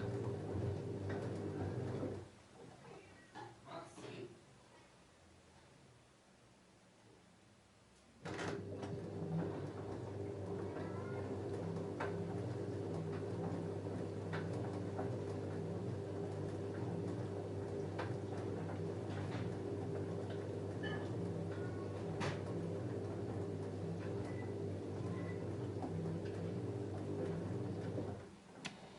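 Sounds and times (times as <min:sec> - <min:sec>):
washing machine humming: 0:00.0 - 0:03.2, 0:08.2 - 0:28.9.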